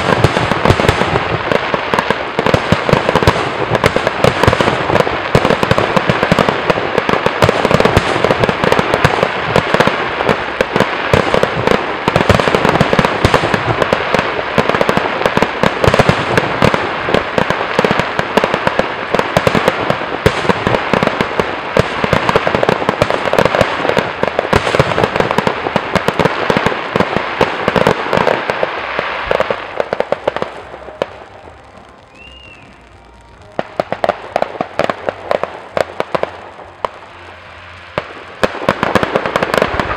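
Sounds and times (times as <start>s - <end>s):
fireworks bangs and crackling: 0.0s - 39.9s
firework whistle: 27.7s - 39.9s.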